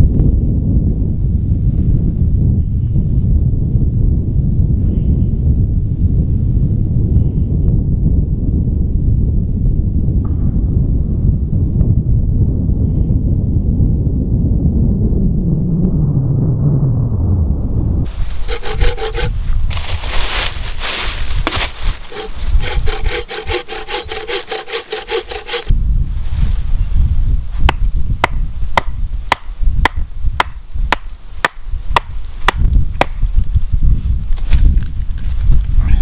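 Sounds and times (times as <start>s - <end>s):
wind on microphone: 0.0s - 36.0s
hand saw cutting wood: 18.3s - 19.4s, 21.5s - 25.7s.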